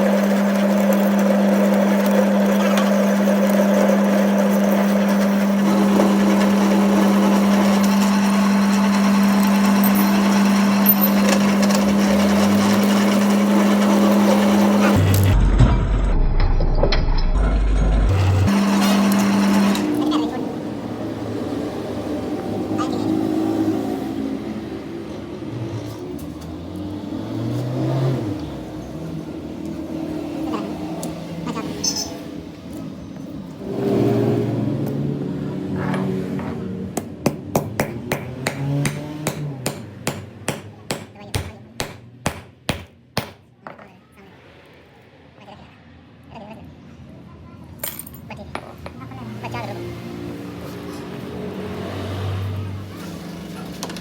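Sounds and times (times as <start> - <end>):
motor running: 0.0 - 24.0
workshop machine humming: 0.0 - 43.4.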